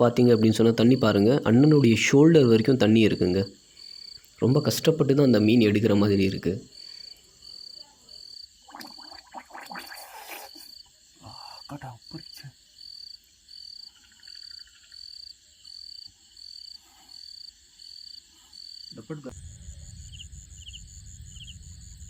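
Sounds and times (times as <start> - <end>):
high pulsed night call: 18.7 - 22.0.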